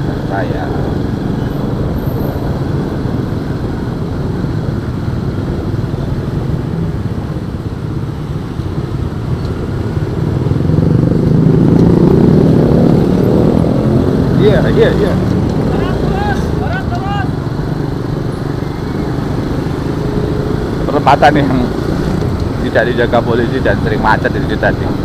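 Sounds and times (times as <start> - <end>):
road and wind noise: 0.0 - 25.0.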